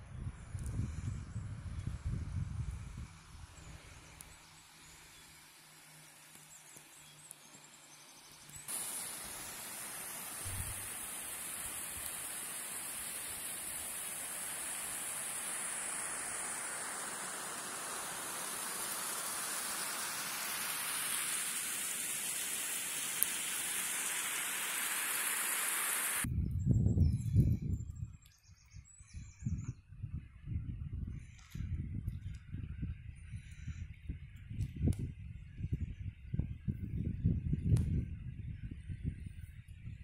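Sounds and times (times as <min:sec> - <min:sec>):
rushing water hiss: 0:08.5 - 0:26.3.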